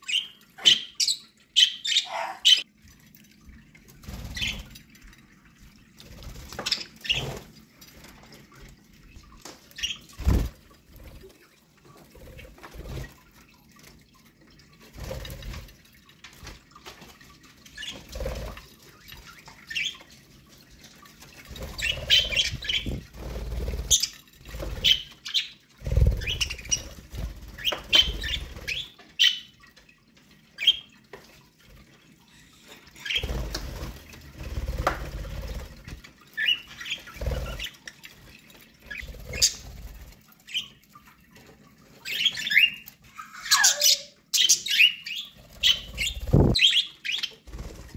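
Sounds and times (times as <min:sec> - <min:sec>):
wings flapping and rustling: 0:06.0 - 0:14.0, 0:14.8 - 0:29.1, 0:32.8 - 0:40.7, 0:45.4 - 0:46.7, 0:47.3 - 0:47.9.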